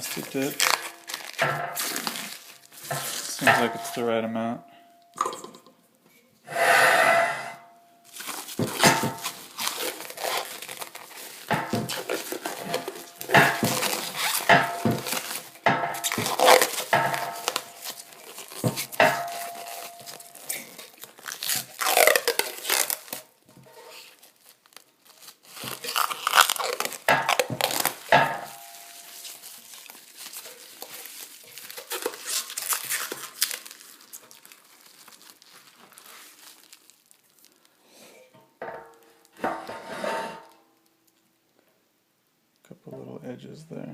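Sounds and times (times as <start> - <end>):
rubber coating peeling: 0.0 - 3.8, 8.1 - 37.6.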